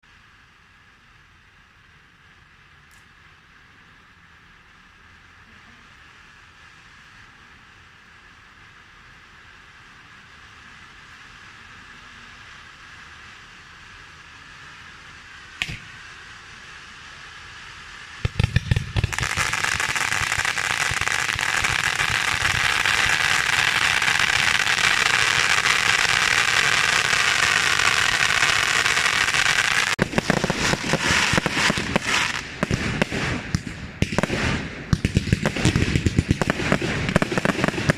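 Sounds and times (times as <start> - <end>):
fireworks crackling: 4.7 - 37.9
fireworks hissing: 5.2 - 37.9
sharp pop: 15.6 - 16.0.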